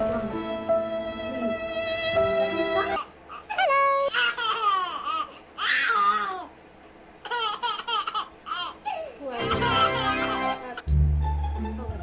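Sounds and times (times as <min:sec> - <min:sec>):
baby laughing and squealing: 0:03.0 - 0:06.5, 0:07.2 - 0:10.7.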